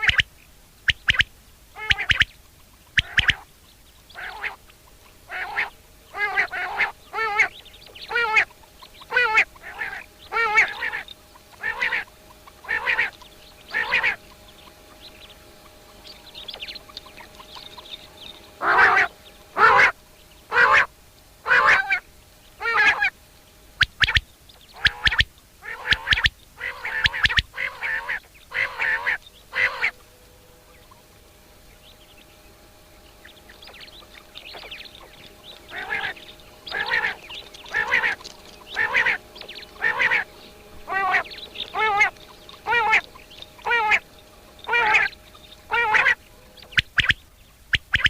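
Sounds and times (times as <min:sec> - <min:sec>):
bird giving harsh nasal calls: 0:05.3 - 0:14.2, 0:34.4 - 0:47.2.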